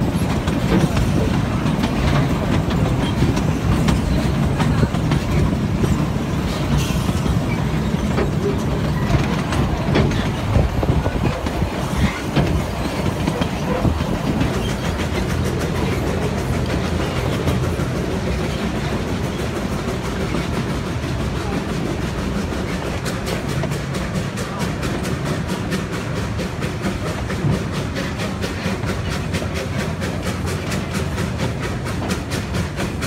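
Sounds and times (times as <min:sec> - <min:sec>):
train carriages rumbling: 0:00.0 - 0:33.0
wheels clicking over rail joints: 0:00.0 - 0:33.0.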